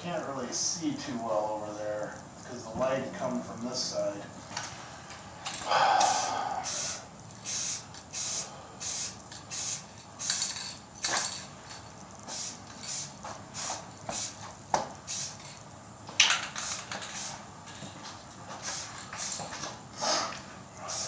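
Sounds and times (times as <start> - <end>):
spray-paint can hissing: 6.0 - 15.6, 16.4 - 17.8, 18.5 - 21.0.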